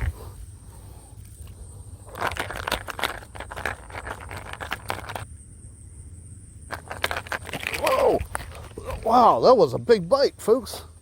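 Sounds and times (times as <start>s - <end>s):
dense rustling and crackling: 0.0s - 5.2s.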